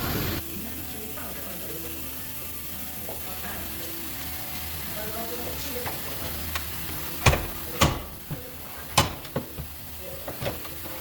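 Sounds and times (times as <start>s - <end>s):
metallic knocks and clanks: 7.2s - 10.8s.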